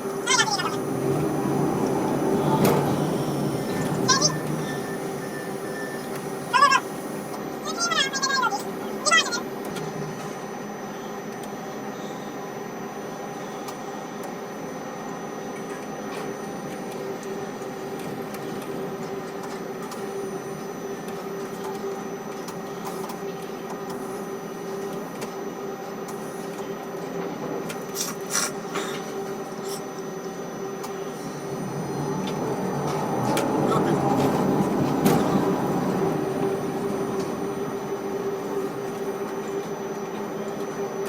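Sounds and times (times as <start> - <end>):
crane machinery hum: 0.0 - 41.0.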